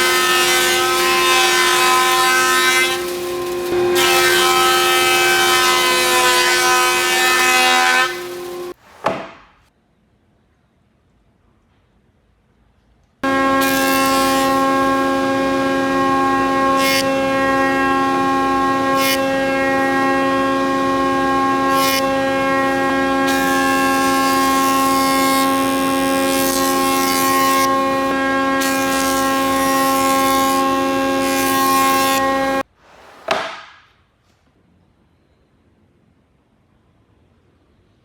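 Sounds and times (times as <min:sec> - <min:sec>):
power tool motor running: 0:00.0 - 0:08.8, 0:13.2 - 0:32.6.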